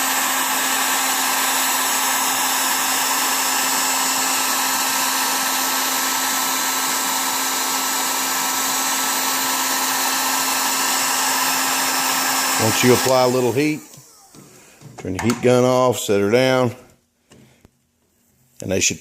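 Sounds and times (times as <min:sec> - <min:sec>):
heat gun blowing air: 0:00.0 - 0:14.9.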